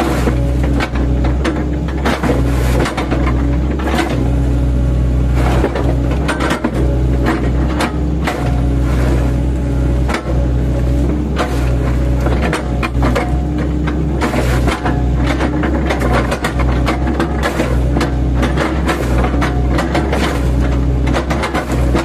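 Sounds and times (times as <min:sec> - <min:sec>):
excavator bucket chopping trunks: 0:00.0 - 0:04.5, 0:05.3 - 0:22.0
diesel engine running under load: 0:00.0 - 0:22.0.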